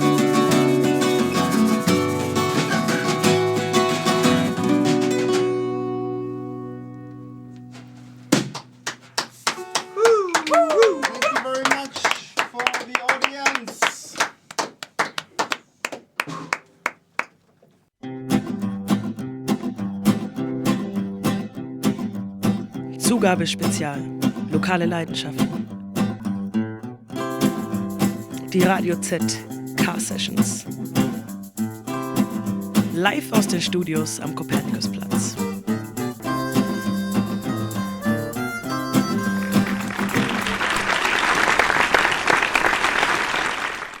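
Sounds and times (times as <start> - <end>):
strummed acoustic guitar music: 0.0 - 10.0, 18.0 - 40.9
audience clapping: 8.5 - 17.5, 39.5 - 44.0.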